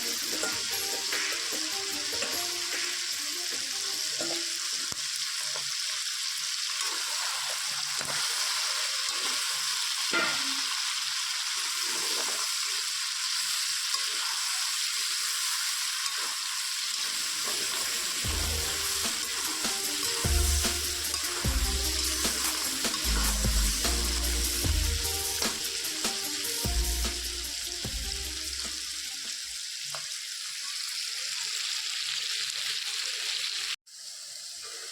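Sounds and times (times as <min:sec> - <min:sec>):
chicken sizzling in a pan: 0:00.0 - 0:34.9
spatula scraping a pan: 0:06.8 - 0:10.6, 0:13.8 - 0:24.6.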